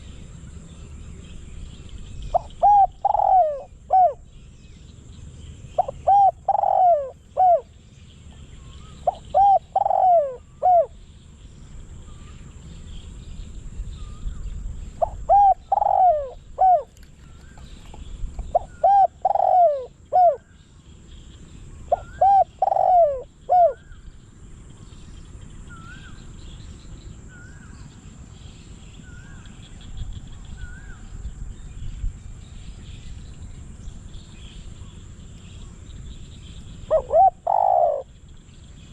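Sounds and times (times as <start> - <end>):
small birds chirping faintly: 0.0 - 38.9
dove cooing: 2.3 - 4.3, 5.8 - 7.7, 8.4 - 10.9, 15.0 - 20.5, 21.9 - 24.0, 36.8 - 38.1.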